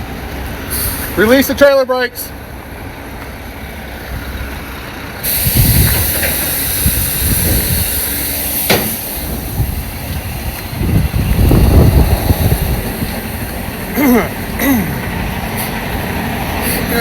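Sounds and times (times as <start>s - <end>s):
diesel engine rumble: 0.0s - 17.0s
air brakes hissing: 0.6s - 1.6s, 5.1s - 17.0s.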